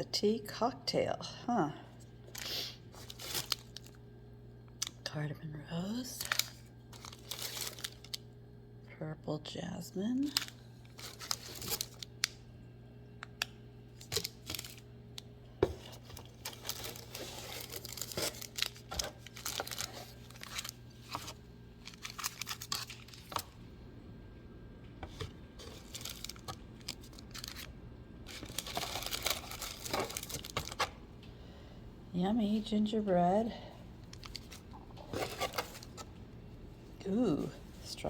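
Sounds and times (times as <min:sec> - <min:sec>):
paper packaging rustling: 0:02.3 - 0:04.0, 0:06.2 - 0:08.2, 0:10.3 - 0:12.3, 0:13.9 - 0:14.8, 0:15.6 - 0:23.6, 0:25.0 - 0:31.0, 0:34.1 - 0:36.1.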